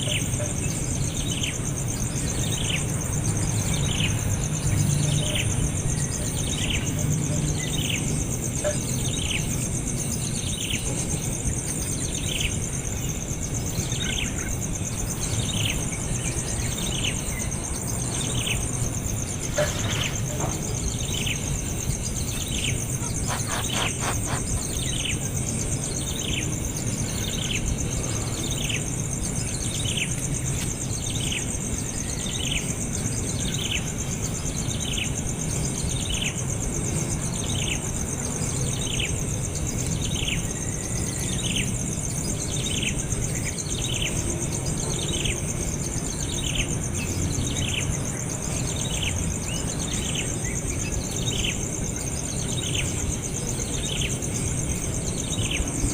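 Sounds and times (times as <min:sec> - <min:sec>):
high drone of insects: 0:00.0 - 0:55.9
baby bird chirping: 0:23.0 - 0:25.0.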